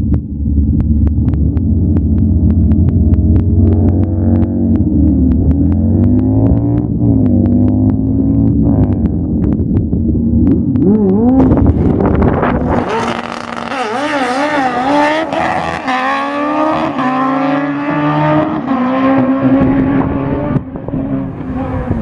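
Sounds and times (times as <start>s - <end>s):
racing engines revving: 10.4s - 22.0s.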